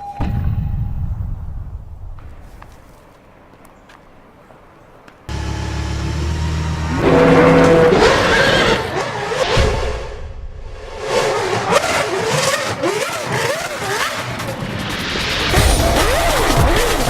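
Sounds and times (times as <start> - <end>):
racing car engine revving: 5.3 - 17.0.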